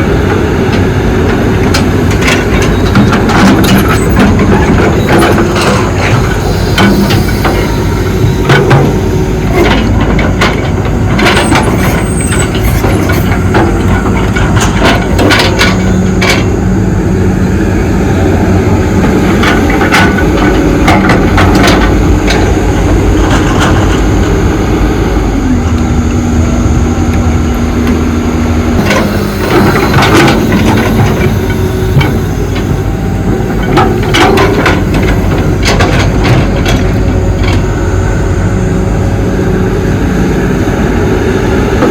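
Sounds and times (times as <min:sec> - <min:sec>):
excavator diesel engine: 0:00.0 - 0:41.9
hydraulic whine: 0:00.0 - 0:41.9
metal clanks and knocks: 0:00.7 - 0:16.6, 0:19.0 - 0:24.2, 0:28.8 - 0:37.7.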